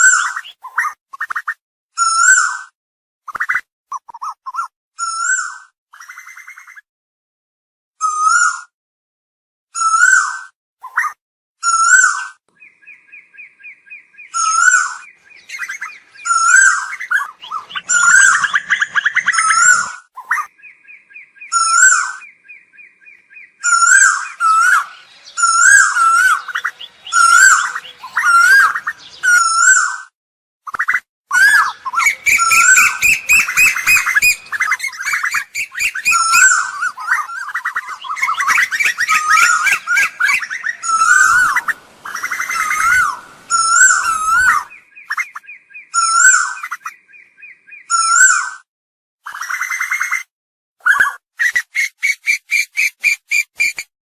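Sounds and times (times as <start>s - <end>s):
koel calling: 12.8s - 29.9s, 31.3s - 46.7s.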